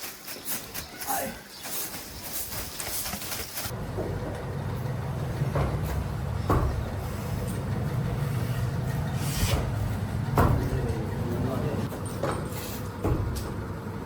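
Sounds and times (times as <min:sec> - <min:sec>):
machine humming: 0:03.7 - 0:12.3
short knocks: 0:03.9 - 0:11.2.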